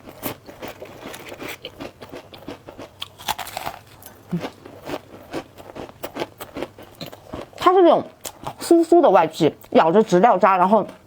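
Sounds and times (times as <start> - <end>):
pastry crunching while chewed: 0.0 - 8.6.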